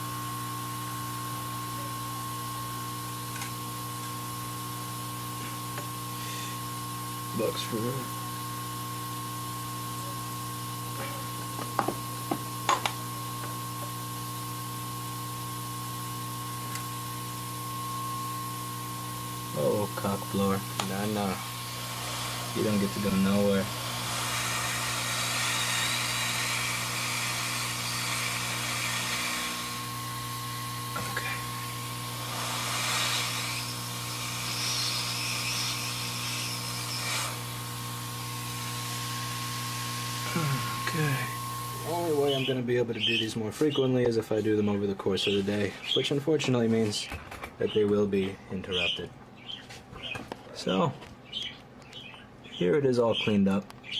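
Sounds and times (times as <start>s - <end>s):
electrical hum with high whine: 0.0s - 53.9s
air blower nozzle hissing: 16.6s - 42.4s.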